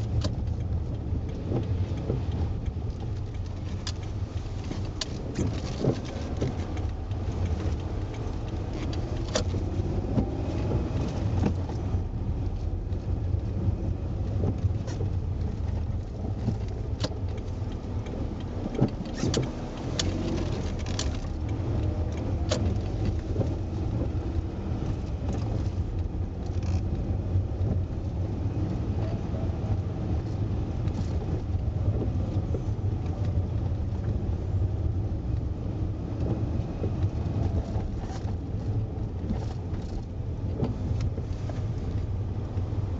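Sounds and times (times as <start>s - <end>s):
sharp clicks and knocks: 0.0s - 13.4s, 14.3s - 28.8s
car engine and tyre rumble: 0.0s - 42.9s.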